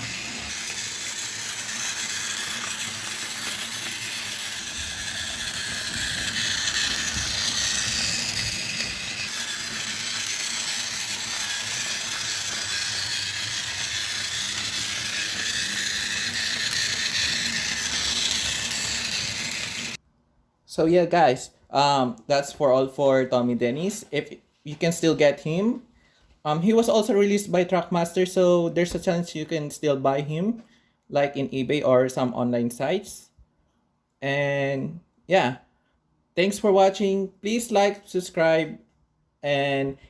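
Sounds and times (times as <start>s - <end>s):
toy train motor whirring: 0.0s - 20.0s.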